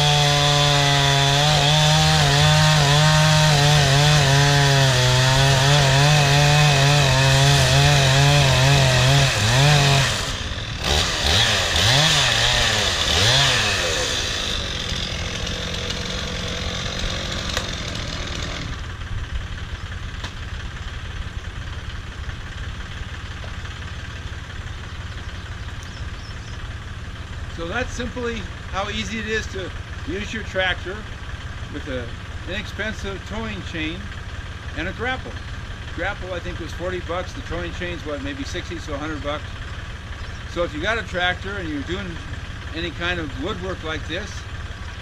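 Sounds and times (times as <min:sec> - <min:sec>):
chainsaw cutting log: 0:00.0 - 0:19.1, 0:36.0 - 0:44.8
engine noise: 0:00.0 - 0:45.0.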